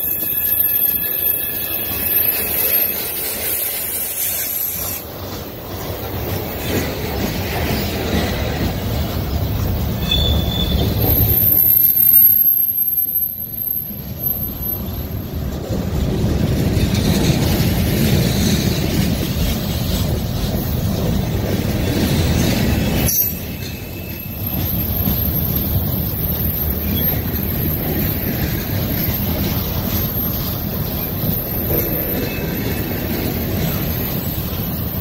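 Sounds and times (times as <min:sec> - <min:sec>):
high wheel squeal: 0:00.0 - 0:05.1, 0:09.9 - 0:15.5, 0:22.9 - 0:35.0
train wheels rumbling on rail: 0:00.0 - 0:35.0.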